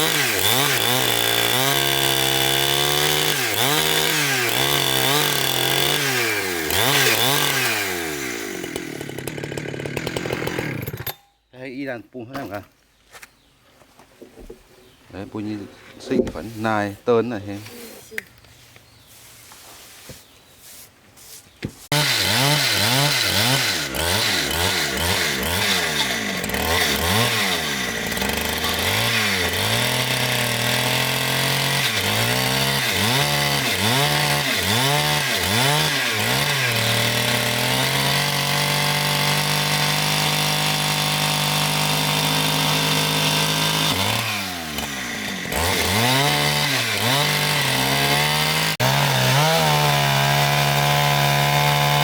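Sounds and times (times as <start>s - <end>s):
chainsaw revving and cutting log: 0.0s - 11.2s, 21.9s - 52.0s.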